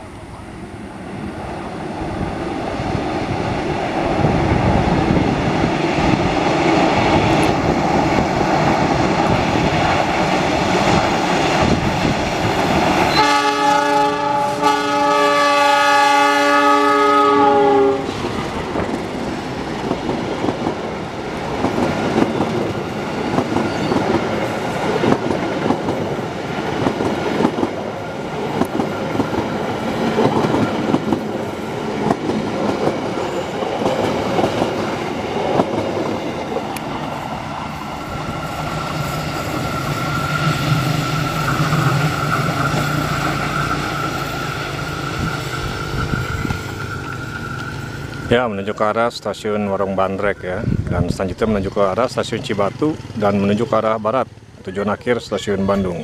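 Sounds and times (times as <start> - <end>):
diesel locomotive engine: 0.0 - 56.0
train horn blast: 13.1 - 18.2
wheels clicking over rail joints: 18.1 - 48.3.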